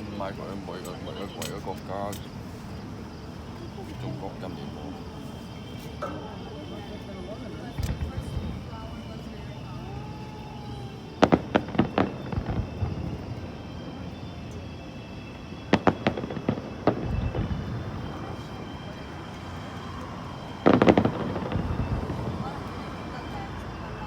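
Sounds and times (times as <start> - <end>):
fireworks exploding: 7.6 - 14.0, 15.5 - 23.4.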